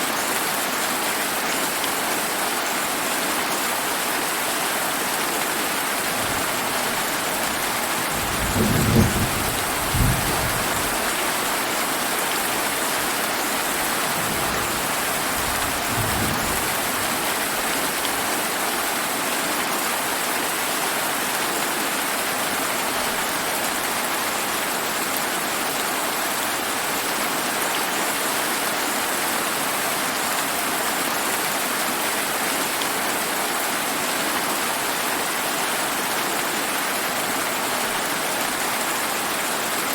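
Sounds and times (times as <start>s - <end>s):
steady rain: 0.0s - 39.9s
thunder rumbling: 8.1s - 11.2s, 14.1s - 17.0s.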